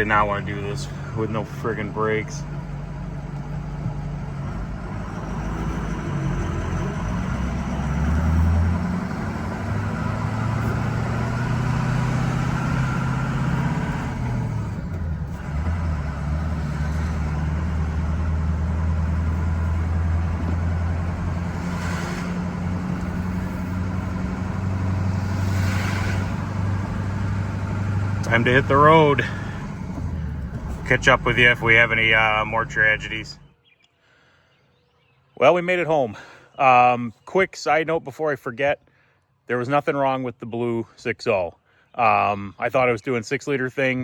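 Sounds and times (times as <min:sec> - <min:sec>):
diesel pickup engine running: 0:00.0 - 0:33.5.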